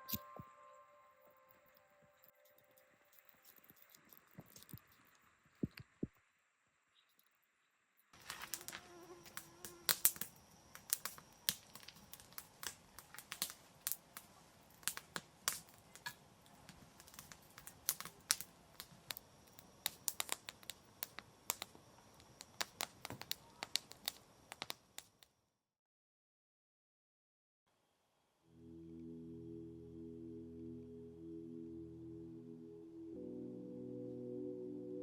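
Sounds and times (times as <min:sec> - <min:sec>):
faint steady hiss: 0:00.0 - 0:25.3
sharp crackles and pops: 0:01.5 - 0:25.4.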